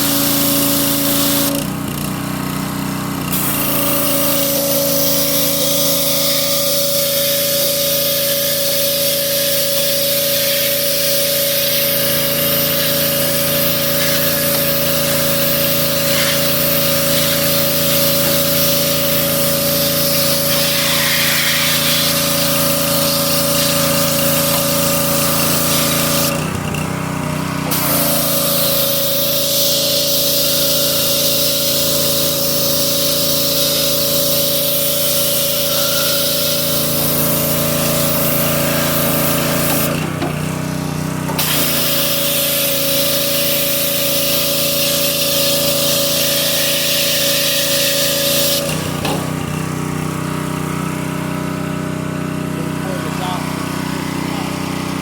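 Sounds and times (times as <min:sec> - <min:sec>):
pressure washer engine running: 0:00.0 - 0:55.0
water jet spraying with high hiss: 0:03.3 - 0:26.5, 0:27.6 - 0:40.1, 0:41.3 - 0:49.5.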